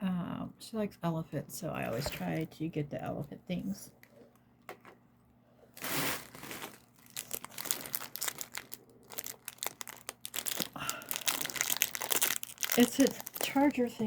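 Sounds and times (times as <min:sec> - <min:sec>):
packaging crinkling: 0:05.7 - 0:14.0.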